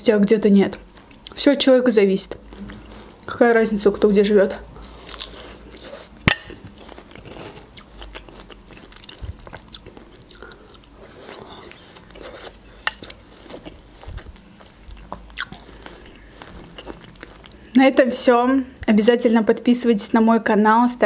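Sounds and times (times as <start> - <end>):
crunchy chewing of melon: 4.6 - 17.8.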